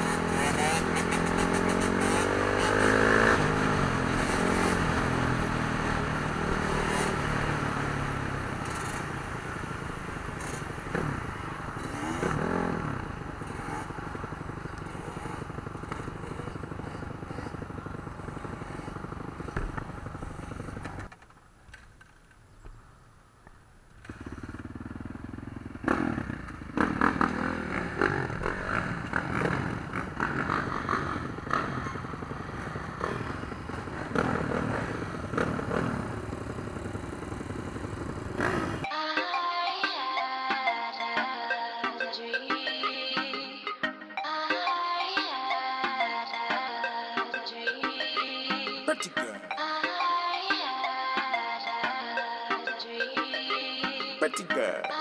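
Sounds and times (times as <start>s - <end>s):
dirt bike engines revving: 0.0s - 21.2s, 22.7s - 38.9s.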